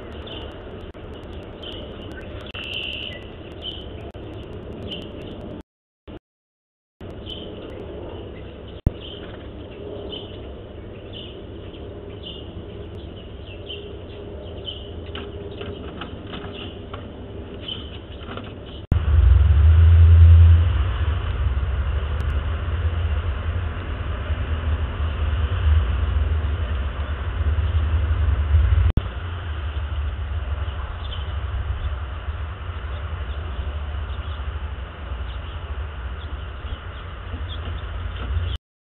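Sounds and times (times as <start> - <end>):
faint bird chirps: 0.0 - 5.5
small birds chirping: 0.0 - 5.6, 7.0 - 18.9, 30.6 - 32.0, 32.8 - 34.5, 35.2 - 38.6
low outdoor rumble: 0.0 - 6.2, 7.0 - 38.6.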